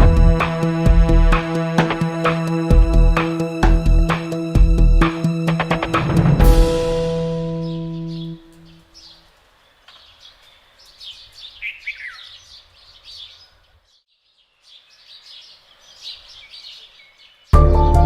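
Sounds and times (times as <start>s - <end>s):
loud music: 0.0s - 8.4s, 17.6s - 18.0s
small birds chirping: 7.6s - 17.6s.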